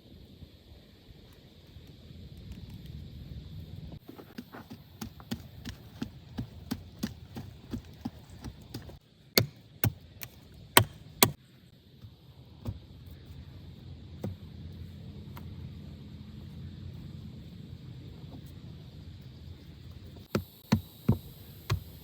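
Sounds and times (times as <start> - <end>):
hand tool striking wood: 4.2 - 11.4, 20.3 - 22.0.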